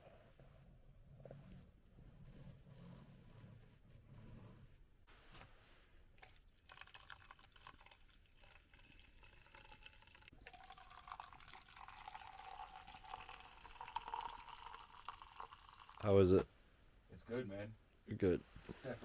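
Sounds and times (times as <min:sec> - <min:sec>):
liquid pouring into container: 0:06.1 - 0:16.1.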